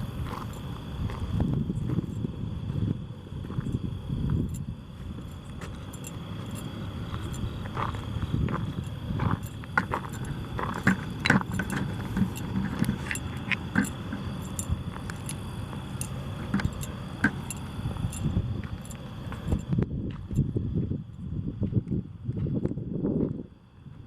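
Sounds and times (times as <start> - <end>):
keys jingling: 5.9 - 7.5, 8.8 - 19.7.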